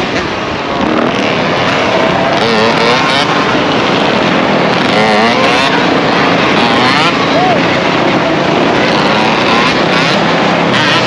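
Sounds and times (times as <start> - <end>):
dirt bike engines revving: 0.0 - 11.0
voices: 4.6 - 9.6.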